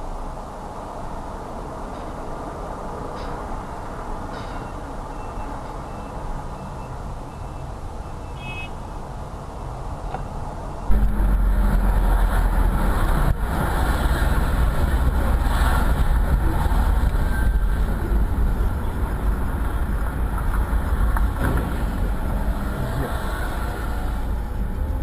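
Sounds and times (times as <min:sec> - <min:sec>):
vehicle engine and road noise: 0:00.0 - 0:25.0.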